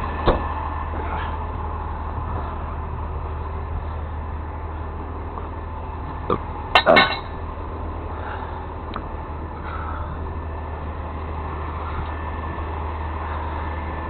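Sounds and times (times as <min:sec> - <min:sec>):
low engine hum: 0:00.0 - 0:14.0
sharp metallic clanks: 0:06.7 - 0:07.4.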